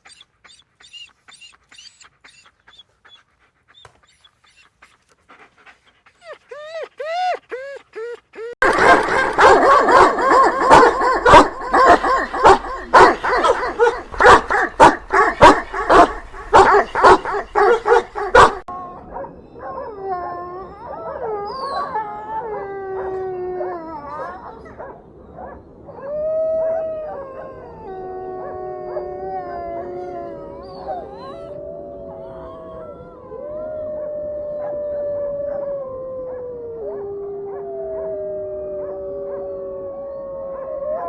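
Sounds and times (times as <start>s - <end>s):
dogs howling: 6.2s - 41.0s
dogs barking: 8.6s - 19.3s.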